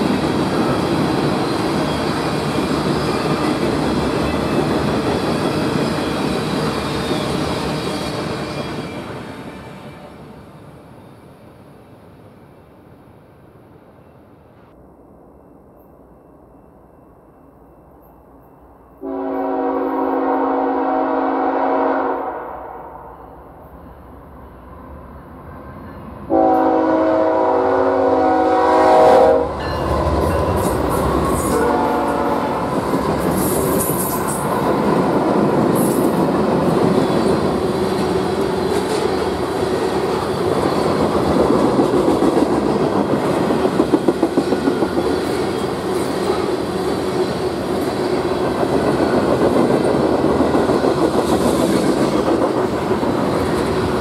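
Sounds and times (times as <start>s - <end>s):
freight train wheels clickety-clack: 0.0s - 10.8s, 29.5s - 54.0s
locomotive air horn blast: 19.0s - 23.1s, 26.3s - 29.6s, 31.4s - 32.7s.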